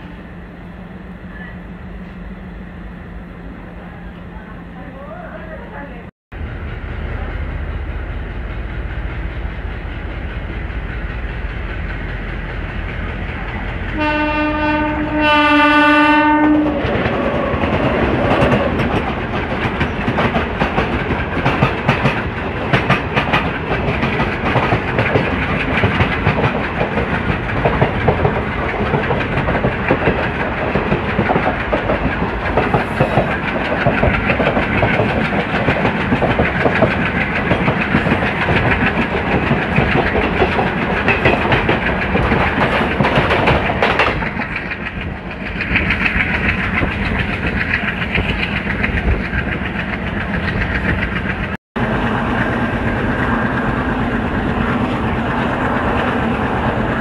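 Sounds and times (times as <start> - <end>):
train passing on adjacent track: 0.0 - 57.0
train horn blasts: 14.0 - 17.6
train coaches clattering over rail joints: 16.5 - 53.6.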